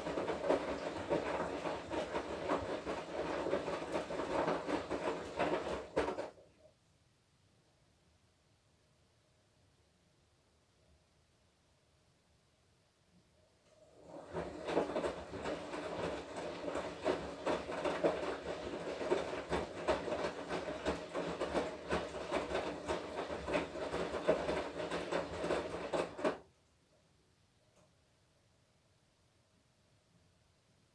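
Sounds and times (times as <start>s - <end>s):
washing machine motor hum: 0.0s - 6.4s, 13.8s - 26.5s
wet laundry clattering in drum: 0.0s - 6.4s, 14.0s - 26.4s.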